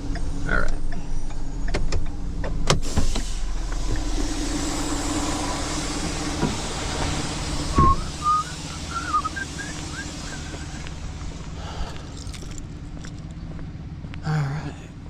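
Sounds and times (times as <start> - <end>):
truck engine idling: 0.0 - 15.0
wavering high chirps: 7.7 - 11.4.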